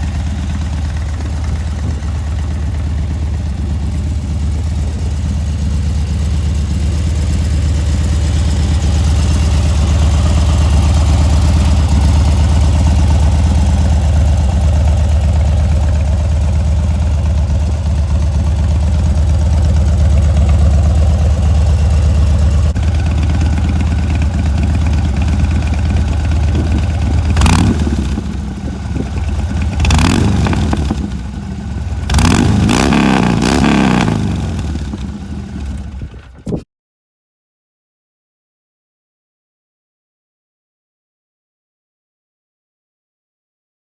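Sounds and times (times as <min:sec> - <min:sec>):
motorcycle engine idling: 0:00.0 - 0:36.6
motorcycle engine revving: 0:00.0 - 0:36.6.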